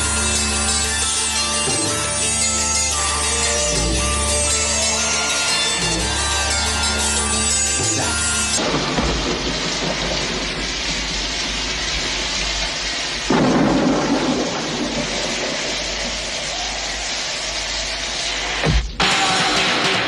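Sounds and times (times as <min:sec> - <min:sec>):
steady rain: 0:00.0 - 0:20.0
thunder crack rumbling: 0:08.0 - 0:18.8.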